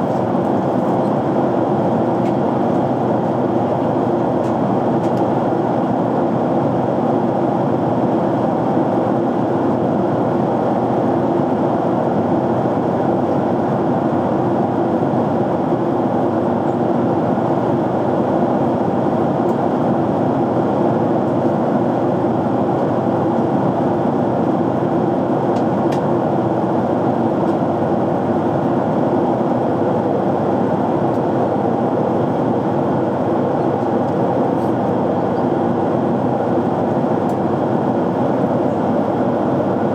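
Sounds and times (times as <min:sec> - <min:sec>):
jet airliner cabin noise: 0:00.0 - 0:39.9.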